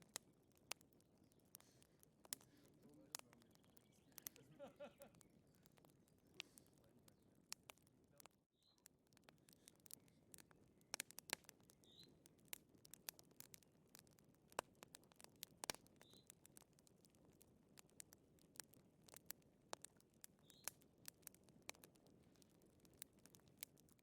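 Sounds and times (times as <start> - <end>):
wood fire crackling: 0.0 - 24.0
faint high chirp: 3.4 - 4.4, 8.6 - 8.8.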